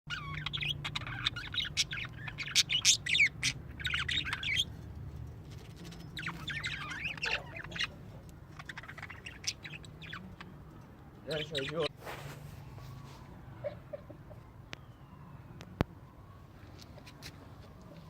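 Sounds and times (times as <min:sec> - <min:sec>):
small birds chirping and squawking: 0:00.1 - 0:15.8.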